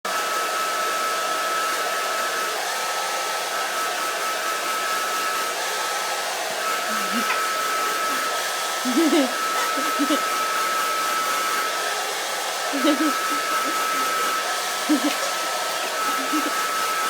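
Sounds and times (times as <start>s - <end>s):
hair dryer running: 0.1s - 17.0s.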